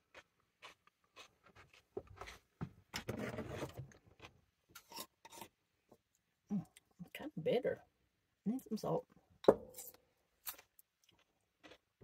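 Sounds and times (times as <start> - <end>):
cucumber crunching: 0.0 - 5.4, 10.4 - 12.0.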